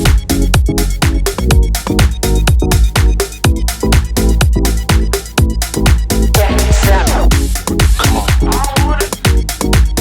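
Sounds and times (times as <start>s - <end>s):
fast kick drum: 0.0s - 10.0s
electronic dance music: 3.0s - 10.0s
synth chords: 5.6s - 9.7s.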